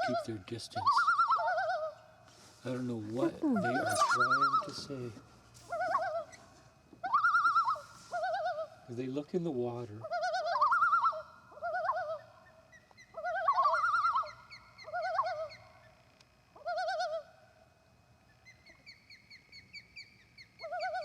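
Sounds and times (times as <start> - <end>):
loons tremolo calls: 3.2 - 5.1, 10.0 - 16.0, 16.6 - 17.3.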